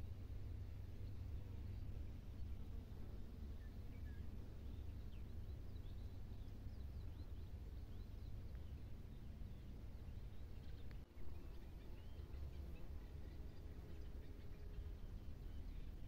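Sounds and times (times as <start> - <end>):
small birds chirping: 3.5 - 16.0.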